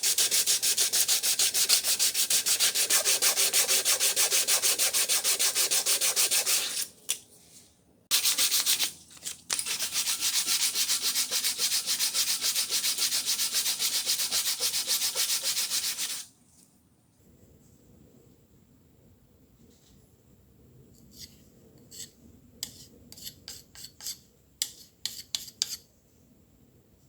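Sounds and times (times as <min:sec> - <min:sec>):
rhythmic sanding of rusted steel: 0:09.6 - 0:16.2.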